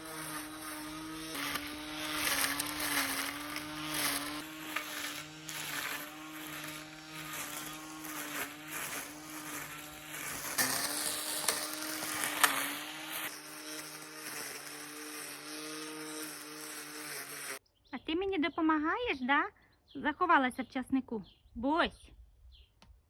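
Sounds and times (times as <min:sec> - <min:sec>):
string trimmer running: 0:00.0 - 0:17.6
trimmer line sweeping grass: 0:00.0 - 0:17.6.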